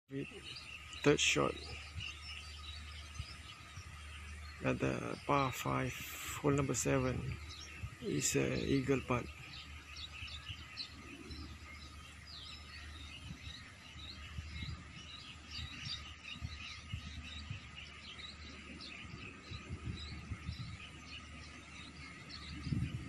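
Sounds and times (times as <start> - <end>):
small birds chirping: 0.1 - 23.0
soft low thumps: 7.1 - 21.3.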